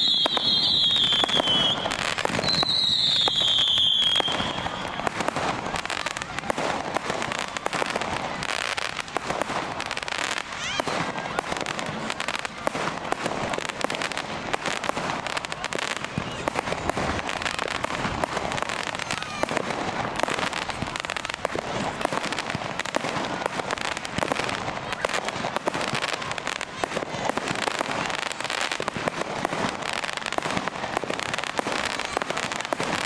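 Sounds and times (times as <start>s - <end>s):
fireworks bangs: 0.0s - 33.0s
fireworks crackling and popping: 0.0s - 33.0s.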